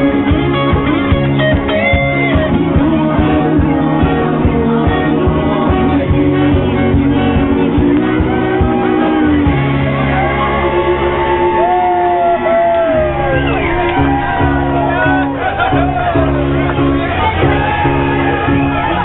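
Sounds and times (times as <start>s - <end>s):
rock band playing: 0.0s - 19.0s
person singing or shouting: 2.3s - 16.5s.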